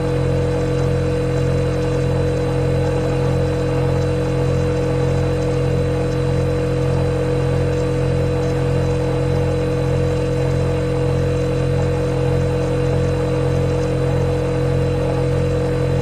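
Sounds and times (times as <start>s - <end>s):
refrigerator humming: 0.0s - 16.0s.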